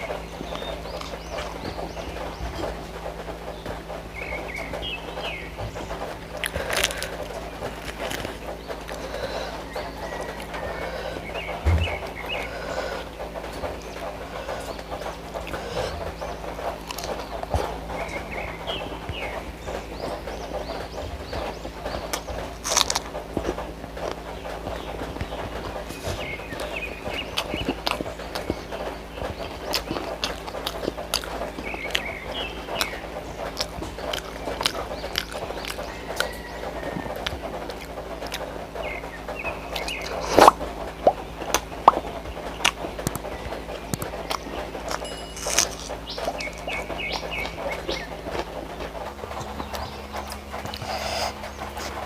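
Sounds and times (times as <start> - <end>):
lip-smacking: 0.0 - 52.0
wet chewing and mouth clicks: 0.0 - 52.0.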